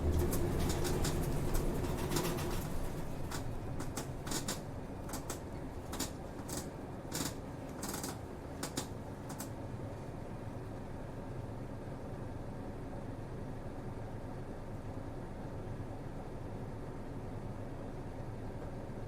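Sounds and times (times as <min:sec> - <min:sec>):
cabin clicks and rattles: 0:00.0 - 0:09.5
bus engine hum: 0:00.0 - 0:11.4.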